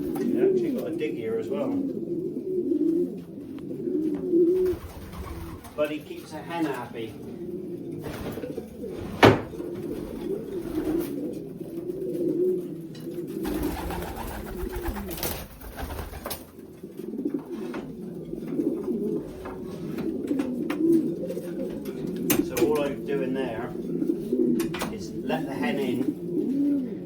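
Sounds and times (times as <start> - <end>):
pigeons cooing: 0.0 - 27.0
rustling: 13.2 - 22.2.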